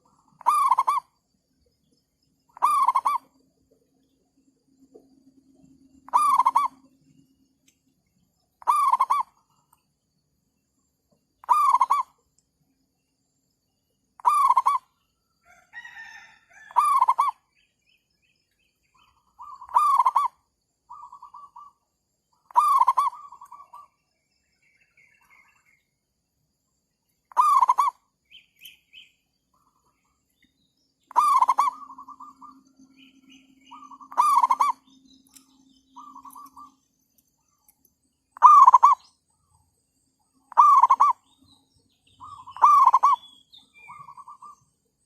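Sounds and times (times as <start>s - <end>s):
faint bird calls: 0.0s - 9.9s, 10.5s - 12.4s, 13.6s - 26.0s, 27.1s - 39.6s, 40.2s - 45.0s
dove cooing: 6.1s - 6.8s, 8.6s - 9.3s, 19.4s - 20.3s, 22.5s - 23.9s, 31.1s - 34.9s, 38.4s - 39.0s, 40.5s - 41.2s, 42.2s - 43.2s.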